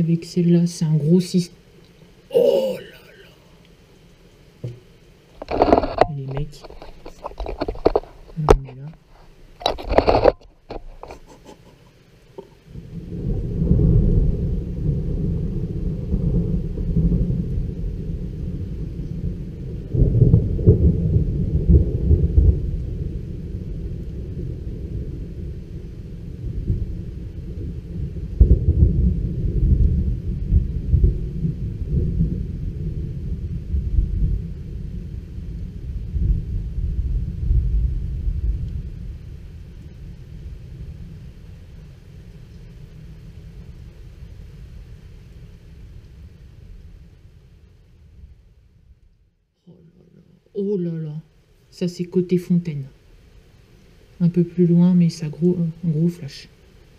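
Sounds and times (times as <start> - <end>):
rolling thunder: 12.7 - 48.8.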